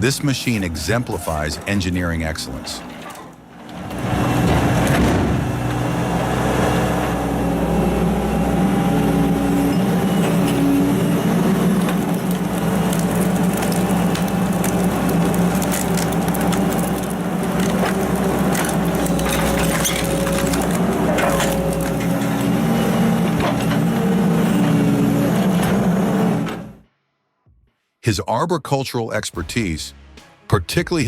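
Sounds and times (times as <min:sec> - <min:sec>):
log splitter droning: 0:03.6 - 0:26.8
wood cracking and splintering: 0:10.0 - 0:24.0.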